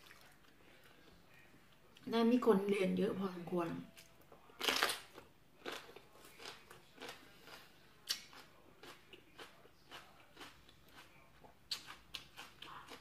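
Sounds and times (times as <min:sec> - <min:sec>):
person chewing crunchy vegetables: 0:04.5 - 0:13.0.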